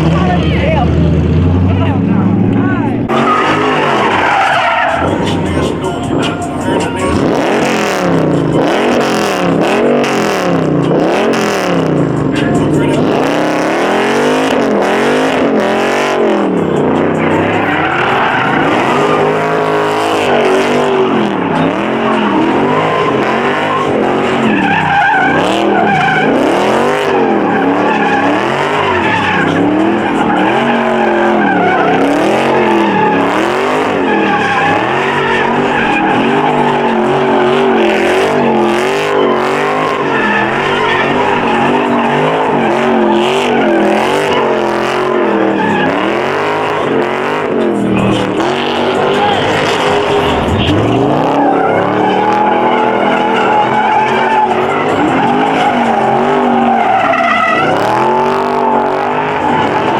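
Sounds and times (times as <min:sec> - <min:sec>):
car engine revving: 0:00.0 - 0:59.9
tyres squealing: 0:00.0 - 0:59.9.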